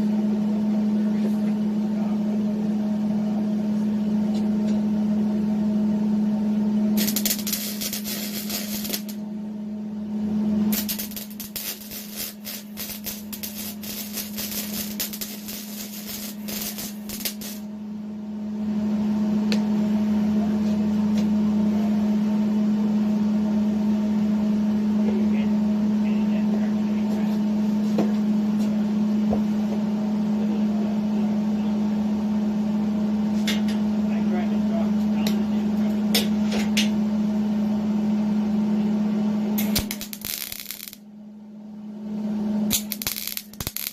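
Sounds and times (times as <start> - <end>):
steady hum: 0.0 - 43.9
welding arc crackling: 7.0 - 9.2, 10.7 - 17.7, 39.6 - 41.0, 42.7 - 43.9.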